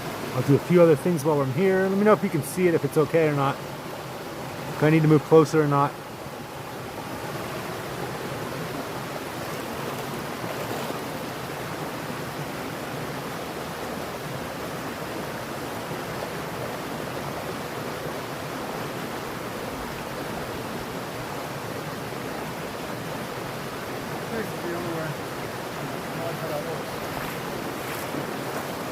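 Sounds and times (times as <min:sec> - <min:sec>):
stream flowing over rocks: 0:00.0 - 0:28.9.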